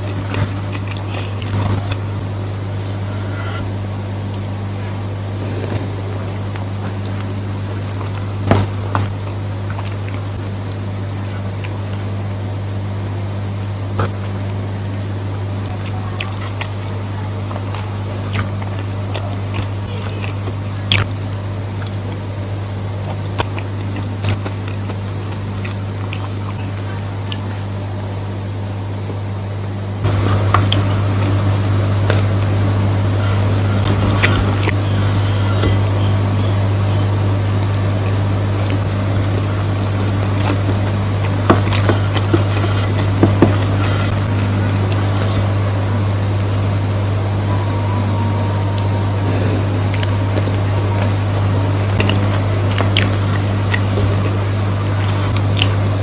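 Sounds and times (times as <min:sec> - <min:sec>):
eating clicks and smacks: 0:00.0 - 0:02.2, 0:06.5 - 0:10.4, 0:17.5 - 0:27.5, 0:38.0 - 0:45.3, 0:51.8 - 0:55.9
mouth clicks and smacks: 0:00.0 - 0:02.2, 0:51.8 - 0:55.8
person chewing food: 0:00.0 - 0:03.7, 0:04.3 - 0:10.4, 0:15.5 - 0:27.5, 0:30.0 - 0:45.7, 0:47.3 - 0:56.0
low hum: 0:00.0 - 0:56.0.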